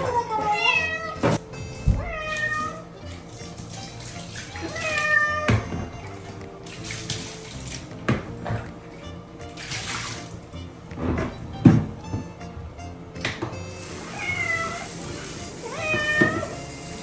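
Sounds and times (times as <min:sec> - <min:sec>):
cat meowing loudly: 0:00.0 - 0:01.4, 0:02.0 - 0:02.8, 0:04.7 - 0:05.6, 0:14.1 - 0:14.9, 0:15.6 - 0:16.6.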